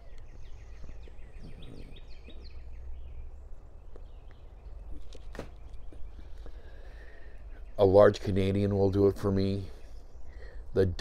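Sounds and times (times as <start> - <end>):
bird chirping: 0.0 - 11.0
low outdoor rumble: 0.0 - 11.0.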